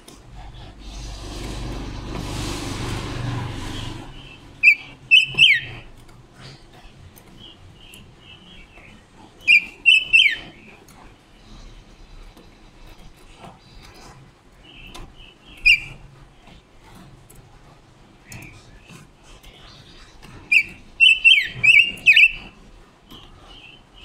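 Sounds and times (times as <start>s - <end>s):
rushing noise with low rumble: 0.5s - 5.1s
soft bird chirps: 4.1s - 5.9s, 7.3s - 10.7s, 19.5s - 22.5s
bird call notes: 4.2s - 5.8s, 9.5s - 10.5s, 20.5s - 22.4s.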